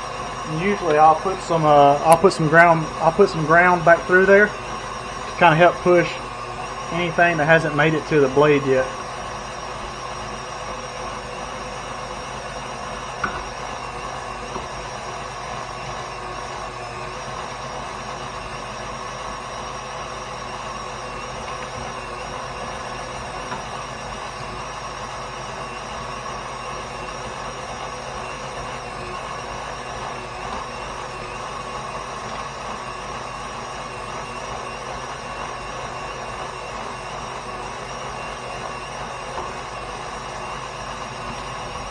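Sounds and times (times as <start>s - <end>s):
stand mixer grinding meat: 0.0s - 41.9s
sharp click: 2.1s - 2.3s.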